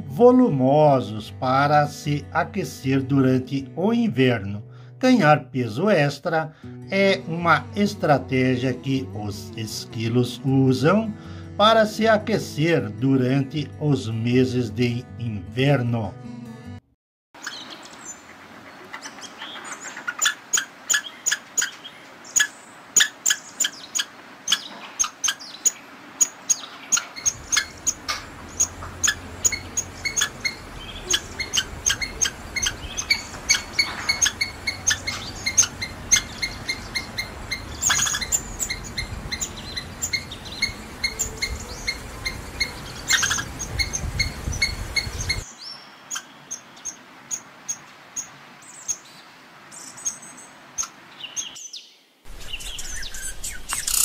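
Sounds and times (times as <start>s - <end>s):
squirrel alarm chirps: 19.1s - 48.3s, 52.4s - 54.0s.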